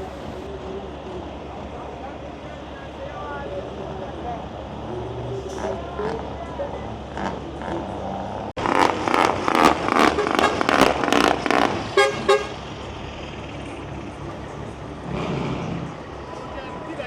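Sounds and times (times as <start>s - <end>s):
vehicle horn tooting: 10.0s - 10.8s, 12.0s - 12.6s.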